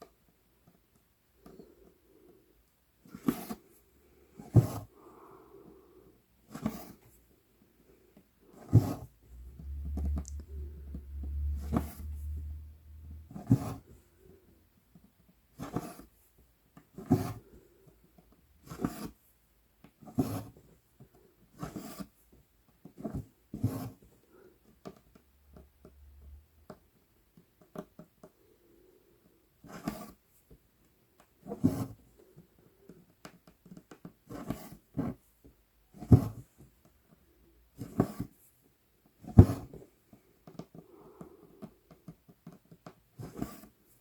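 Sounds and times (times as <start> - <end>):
needle pulled through fabric: 8.6 - 14.0
low rumble: 9.2 - 13.6.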